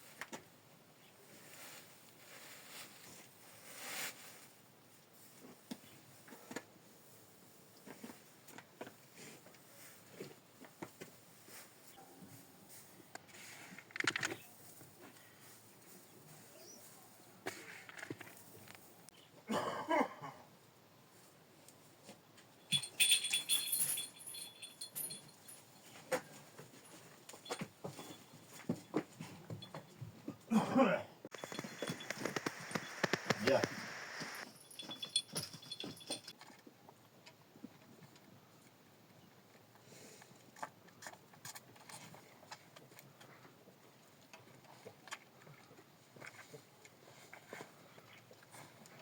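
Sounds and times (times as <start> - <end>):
small metal bells jingling: 22.7 - 26.0, 26.8 - 28.3, 31.4 - 33.6, 34.2 - 36.4.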